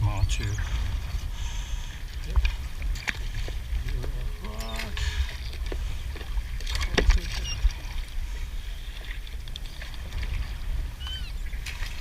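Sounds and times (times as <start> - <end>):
steady low rumble: 0.0 - 7.0.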